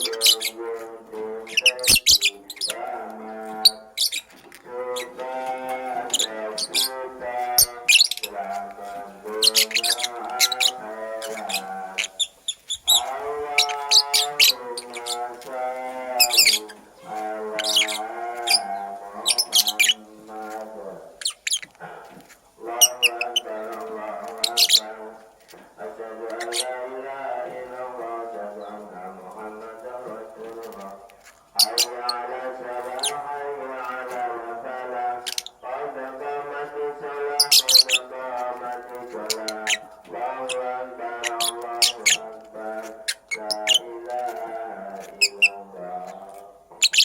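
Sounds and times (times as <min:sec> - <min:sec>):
bird chirping and squawking: 0:00.0 - 0:00.6, 0:01.4 - 0:02.8, 0:03.5 - 0:05.3, 0:06.0 - 0:08.5, 0:09.3 - 0:15.4, 0:16.1 - 0:20.1, 0:21.1 - 0:25.0, 0:26.3 - 0:26.8, 0:31.5 - 0:32.2, 0:32.9 - 0:33.3, 0:35.2 - 0:35.6, 0:37.3 - 0:38.1, 0:39.2 - 0:42.3, 0:42.9 - 0:43.9, 0:45.0 - 0:47.0.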